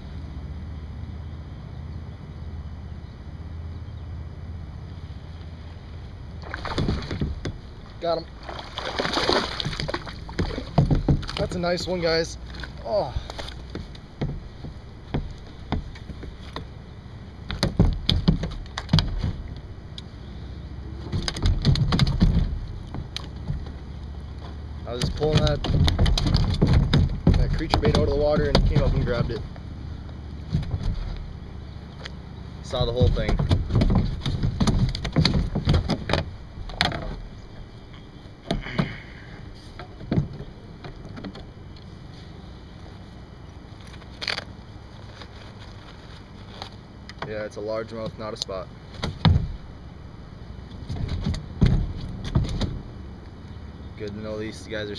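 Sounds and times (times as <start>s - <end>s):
clattering knocks on kayak: 6.4s - 7.6s, 8.8s - 11.6s, 13.6s - 16.7s, 17.5s - 19.6s, 21.1s - 23.8s, 25.0s - 29.4s, 32.8s - 37.2s, 49.0s - 49.6s, 50.9s - 52.8s.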